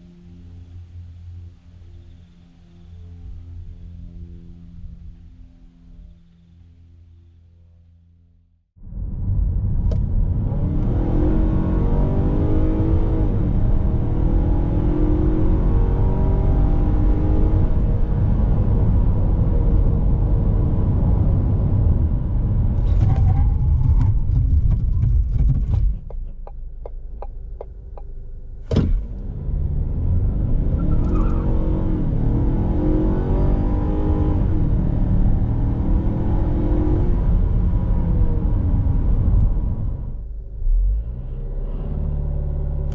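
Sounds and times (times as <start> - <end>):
car engine accelerating hard: 9.0 - 42.9.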